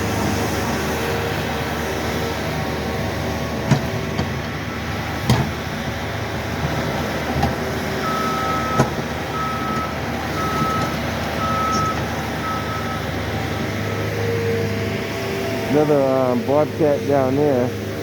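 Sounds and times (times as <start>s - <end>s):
engine drone: 0.0s - 18.0s
reversing alarm beeps: 8.0s - 13.1s.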